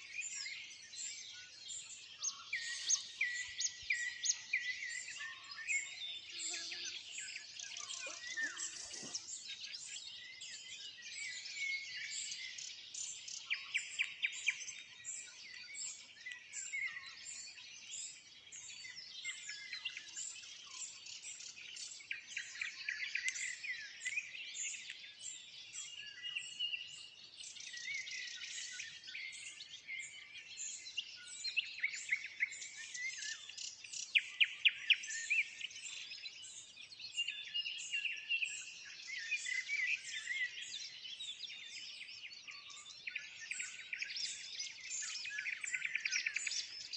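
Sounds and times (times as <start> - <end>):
songbirds dawn chorus: 0.0 - 46.9.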